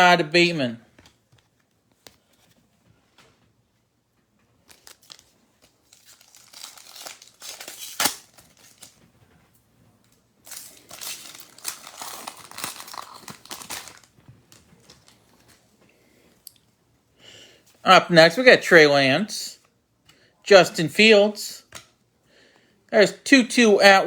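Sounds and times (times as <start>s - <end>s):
foil wrappers crinkling: 4.6s - 9.1s, 10.4s - 15.6s.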